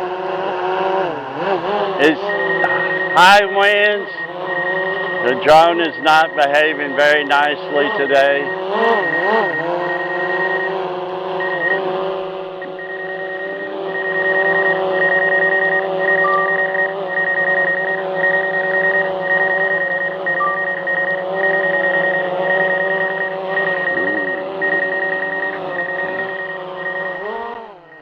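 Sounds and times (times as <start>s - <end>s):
electronic warning beep: 2.0s - 28.0s
steady hum: 11.4s - 27.3s.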